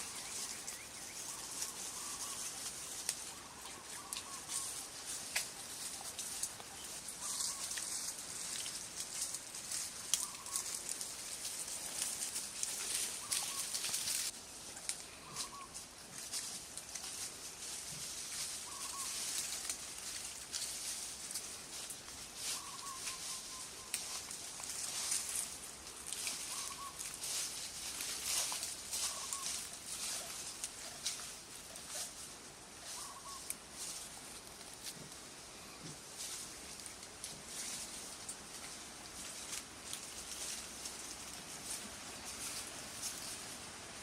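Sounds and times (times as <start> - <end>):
faint animal chirping: 0.0 - 8.1, 9.2 - 11.0, 12.8 - 14.3, 15.0 - 15.8, 18.6 - 19.5, 22.4 - 25.2, 26.1 - 32.2, 32.8 - 34.0.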